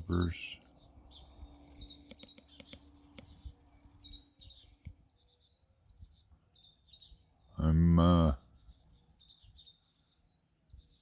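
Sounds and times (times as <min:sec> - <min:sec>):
faint steady hum: 0:00.0 - 0:06.4
songbirds chirping: 0:00.0 - 0:11.0.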